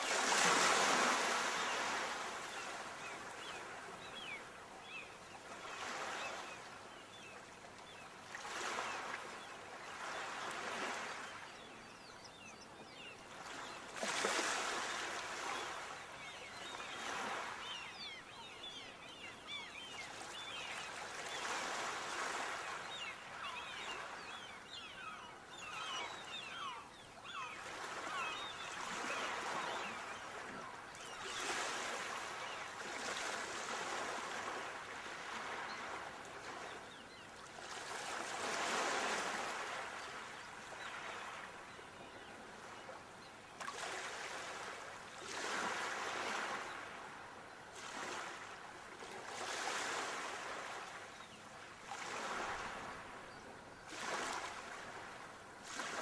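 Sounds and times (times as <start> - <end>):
sea waves breaking ashore: 0.0 - 5.0.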